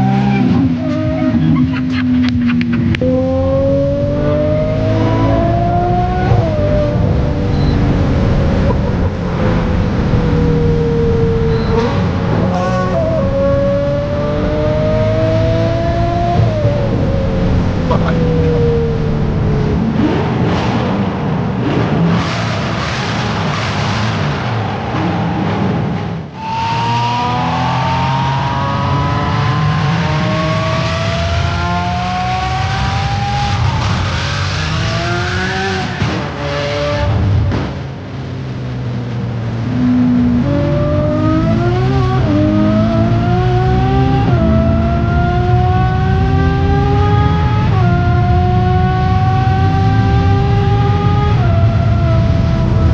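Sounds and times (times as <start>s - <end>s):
racing engines at high revs: 0.0s - 38.0s, 39.2s - 52.9s
engine whine falling in pitch: 2.2s - 20.0s.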